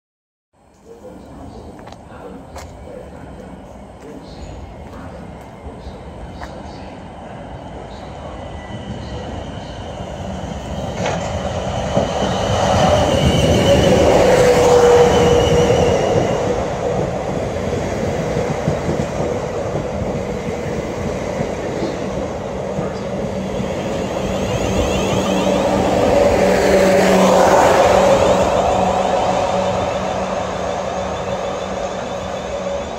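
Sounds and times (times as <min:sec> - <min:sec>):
train wheels rumbling on rails: 0:00.8 - 0:32.9.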